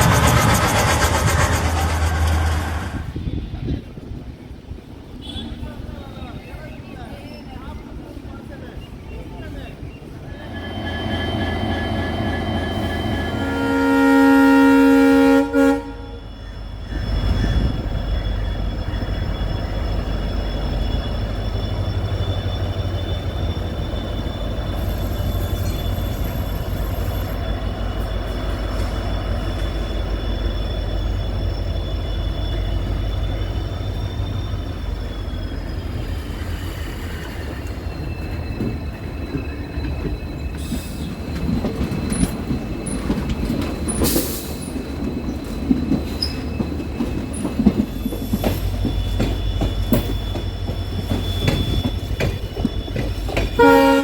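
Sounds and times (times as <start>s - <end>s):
train running rumble and whine: 0.0s - 54.0s
diesel locomotive horn: 5.2s - 5.7s, 10.4s - 16.3s, 53.6s - 54.0s.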